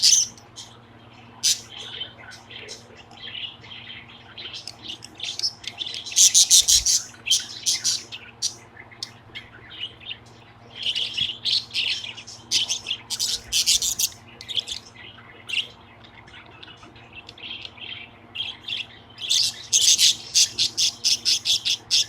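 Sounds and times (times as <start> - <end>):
budgerigar chirping and chattering: 0.0 - 0.7, 1.4 - 15.8, 16.6 - 22.0.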